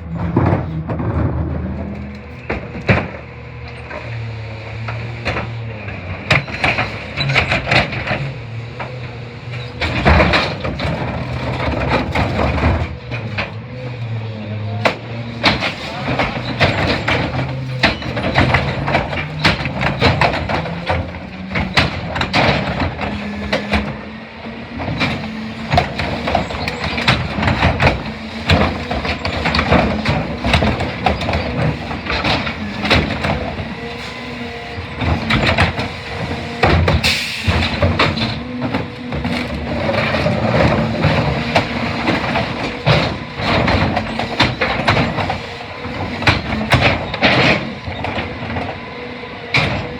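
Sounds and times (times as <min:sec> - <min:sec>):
garbage truck engine running: 0:00.0 - 0:49.9.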